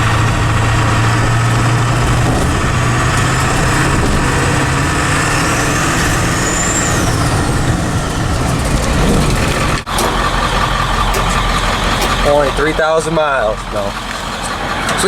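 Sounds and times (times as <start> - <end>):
diesel truck engine running: 0.0 - 15.0
high turbo whistle: 5.2 - 7.5.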